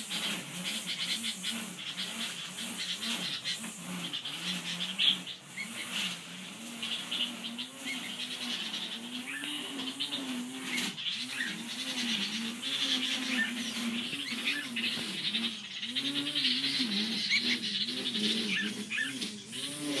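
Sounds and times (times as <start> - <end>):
bird low rising and falling call: 6.8 - 20.0.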